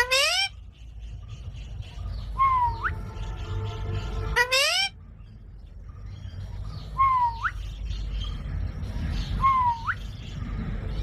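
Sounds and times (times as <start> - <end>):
parrot calling: 0.0 - 0.7, 3.6 - 5.0.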